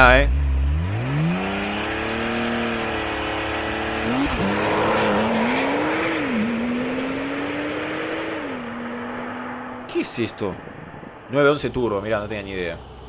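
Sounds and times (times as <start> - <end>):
car engine revving hard: 0.0 - 9.9.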